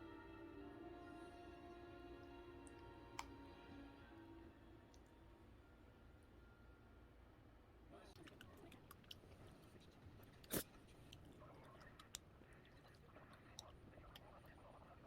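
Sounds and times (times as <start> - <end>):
quiet chewing: 8.0 - 15.0.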